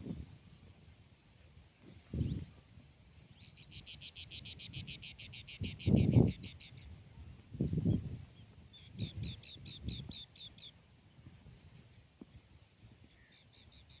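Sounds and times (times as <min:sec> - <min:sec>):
low rumbles on microphone: 0:07.1 - 0:10.2.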